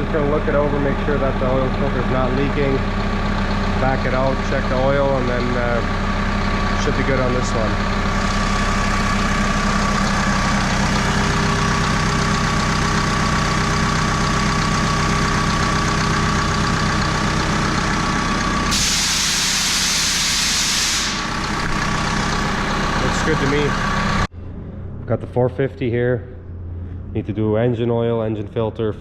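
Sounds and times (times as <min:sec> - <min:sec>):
diesel engine running: 0:00.0 - 0:29.0
steady whine: 0:00.0 - 0:29.0
loud hiss: 0:18.7 - 0:21.4.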